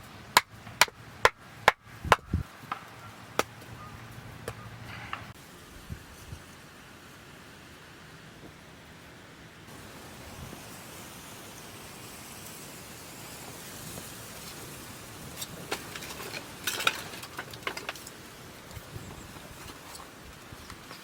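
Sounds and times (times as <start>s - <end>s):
food sizzling in a pot: 9.7s - 16.0s
utensils clattering: 15.2s - 18.2s.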